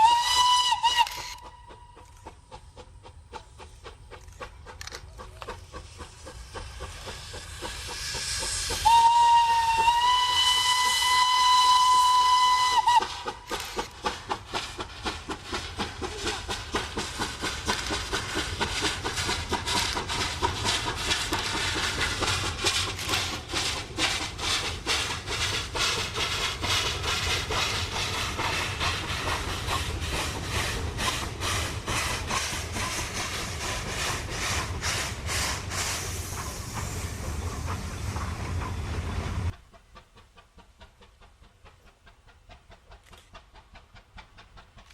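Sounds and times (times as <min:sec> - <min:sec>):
steam locomotive whistle: 0:00.0 - 0:02.0, 0:08.7 - 0:13.6
steam hiss: 0:00.0 - 0:44.8
locomotive exhaust chuffs: 0:00.0 - 0:44.9.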